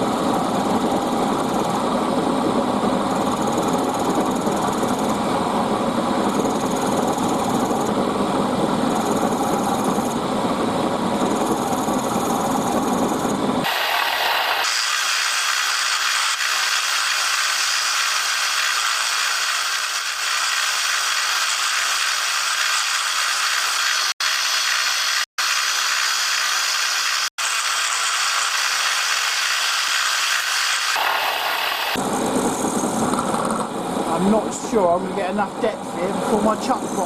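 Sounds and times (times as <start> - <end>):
end mill cutting aluminium: 13.6 - 33.7.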